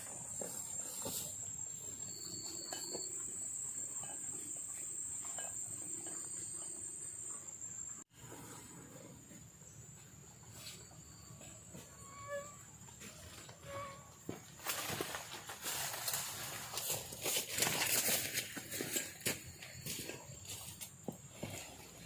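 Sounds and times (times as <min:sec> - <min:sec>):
night insects droning: 0:00.0 - 0:08.0, 0:13.7 - 0:22.0.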